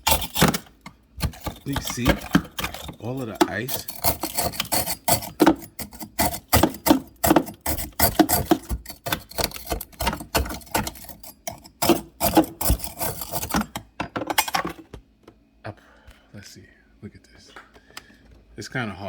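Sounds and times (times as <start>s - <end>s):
hand tool chipping ice: 0.0s - 13.8s
loose ice clattering: 0.0s - 14.9s.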